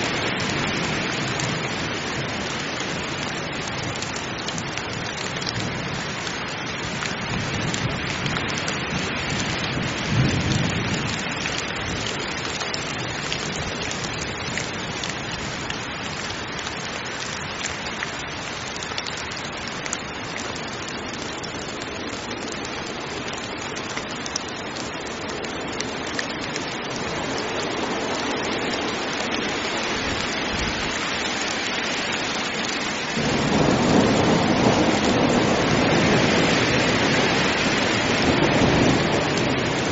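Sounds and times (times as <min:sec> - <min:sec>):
heavy rain: 0:00.0 - 0:39.9
low thunder rumble: 0:08.9 - 0:12.1, 0:33.2 - 0:39.9.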